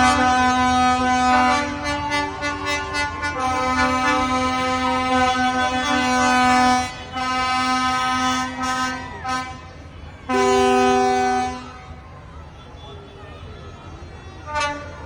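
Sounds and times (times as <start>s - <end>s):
two-tone horn blast: 0.0s - 9.7s, 10.3s - 11.8s, 14.4s - 15.0s
vehicle horns blasting: 0.0s - 11.8s, 12.6s - 15.0s.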